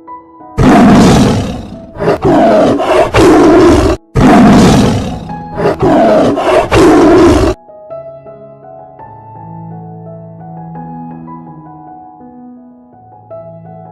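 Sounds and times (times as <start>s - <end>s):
loud animal roar: 0.6s - 7.6s.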